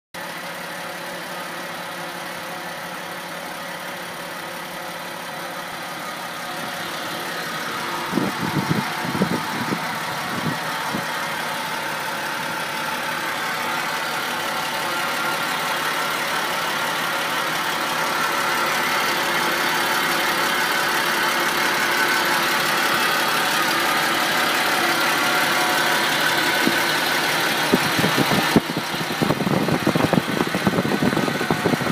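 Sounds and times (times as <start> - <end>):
car engine idling: 0.2 - 31.9.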